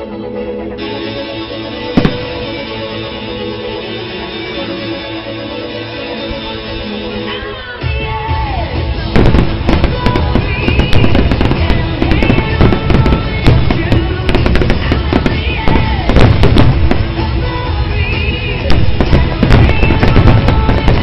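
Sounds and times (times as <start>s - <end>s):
loud music: 0.0s - 21.0s
fireworks banging and crackling: 2.0s - 2.7s, 9.0s - 21.0s.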